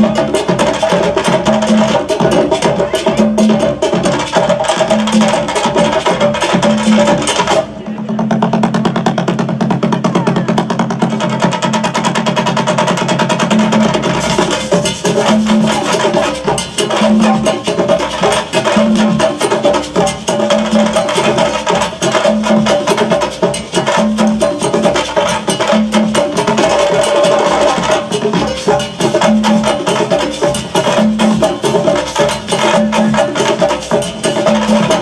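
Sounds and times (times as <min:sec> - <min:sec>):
percussion music: 0:00.0 - 0:35.0.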